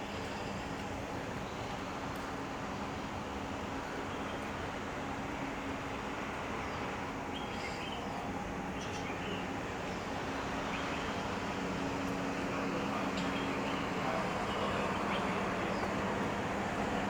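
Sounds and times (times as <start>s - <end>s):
distant traffic: 6.7s - 17.0s.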